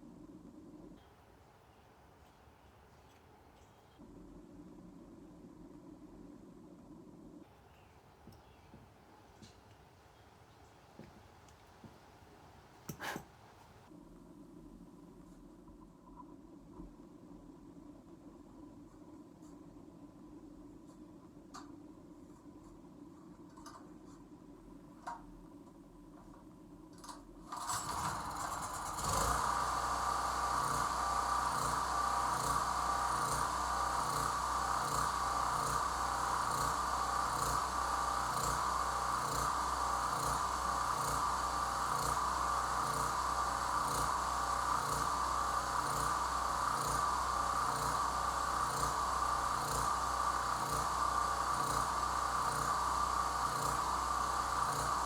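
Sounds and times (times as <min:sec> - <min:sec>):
generator engine starting and running: 0:27.5 - 0:55.0.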